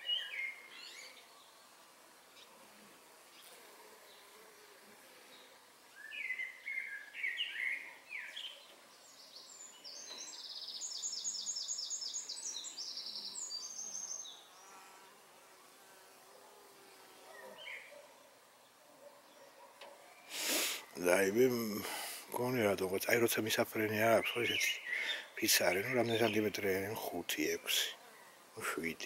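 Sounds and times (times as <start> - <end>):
honeybees buzzing: 0.0 - 29.0
birdsong trill: 6.0 - 14.5, 23.2 - 27.8.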